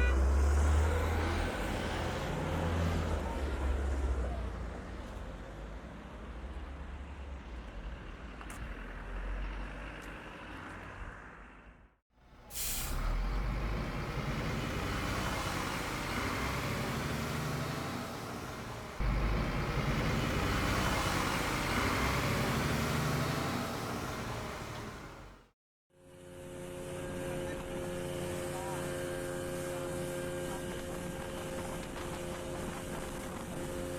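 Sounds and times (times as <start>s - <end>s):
motor vehicle rumble: 0.0s - 25.6s
air brake hiss: 12.5s - 13.2s.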